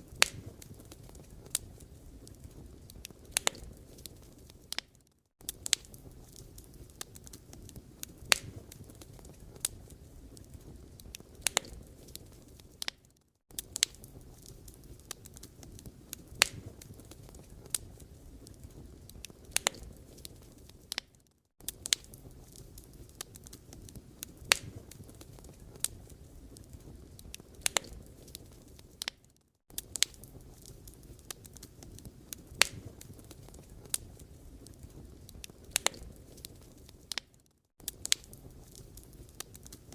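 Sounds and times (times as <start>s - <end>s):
fire crackling and popping: 0.0s - 39.9s
firewood burning: 0.0s - 39.9s.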